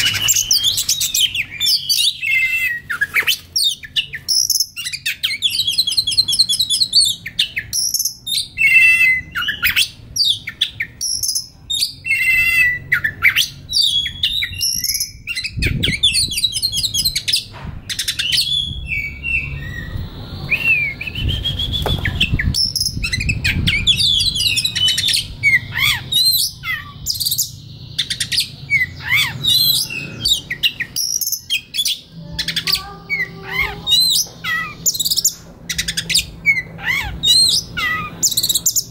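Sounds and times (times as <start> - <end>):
songbird singing varied whistles: 0.0 - 32.0.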